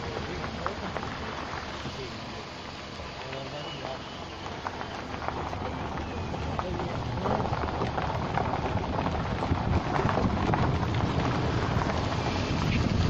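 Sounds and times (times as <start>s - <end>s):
wind buffeting microphone: 5.0s - 13.0s.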